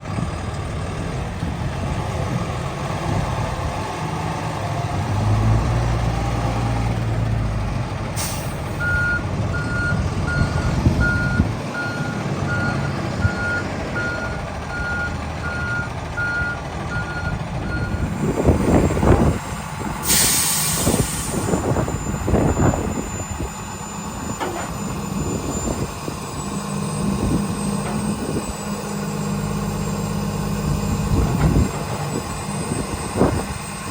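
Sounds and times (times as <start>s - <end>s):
truck diesel engine running: 0.0s - 33.9s
air brake hiss: 8.2s - 8.8s, 20.0s - 21.8s
backup alarm beeping: 8.3s - 18.4s
clunks: 23.9s - 25.8s, 26.9s - 30.0s, 30.7s - 32.4s.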